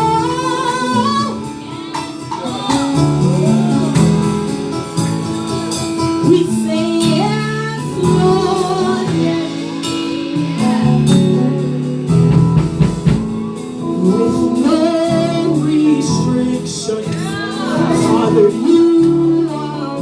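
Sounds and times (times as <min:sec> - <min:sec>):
band playing: 0:00.0 - 0:20.0
voices singing gospel: 0:00.0 - 0:20.0
drum hits: 0:09.1 - 0:13.7.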